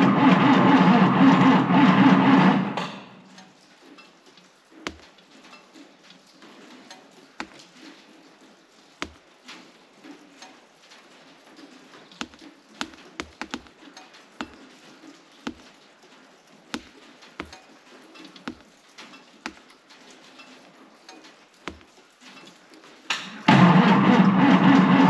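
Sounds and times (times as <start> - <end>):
water drips on hard surfaces: 3.3 - 23.1.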